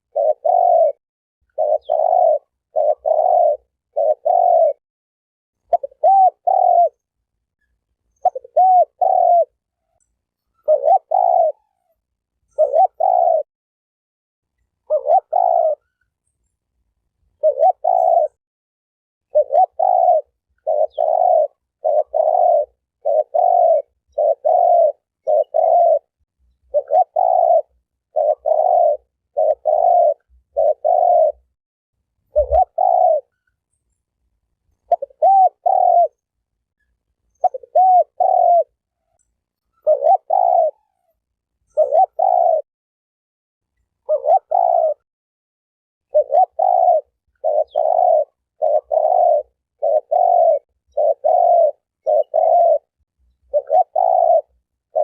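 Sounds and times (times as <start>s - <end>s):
dove cooing: 0.0s - 4.8s, 5.6s - 7.1s, 8.1s - 13.5s, 14.8s - 16.0s, 17.4s - 18.4s, 19.3s - 31.5s, 32.3s - 33.4s, 34.8s - 36.3s, 37.3s - 42.7s, 44.0s - 45.0s, 46.1s - 55.0s.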